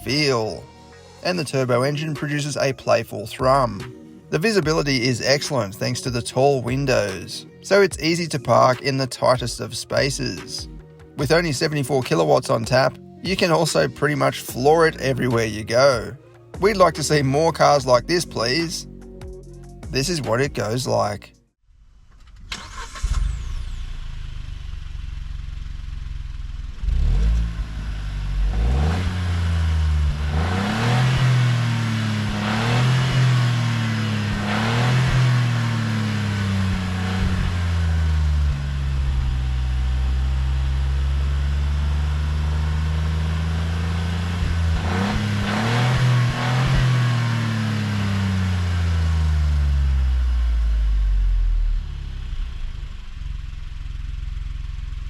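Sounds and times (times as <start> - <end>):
car engine accelerating hard: 22.5 - 55.0.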